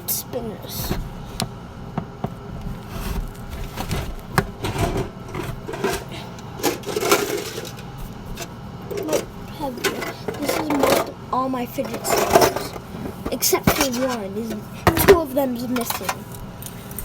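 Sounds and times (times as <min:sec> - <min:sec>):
fidget spinners clicking and scraping: 0:11.7 - 0:17.0.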